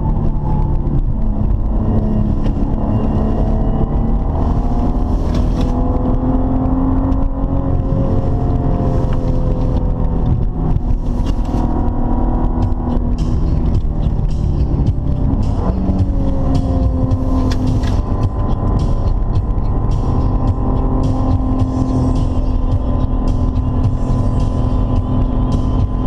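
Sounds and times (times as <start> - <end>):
car engine: 0.0 - 26.0
road noise: 0.0 - 26.0.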